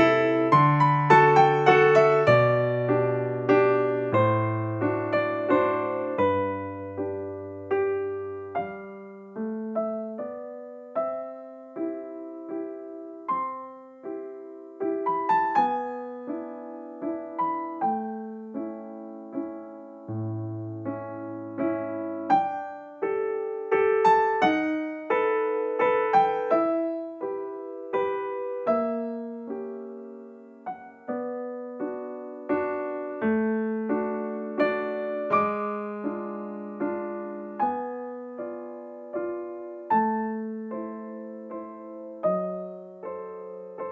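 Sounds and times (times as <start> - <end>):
gentle piano music: 0.0 - 43.9.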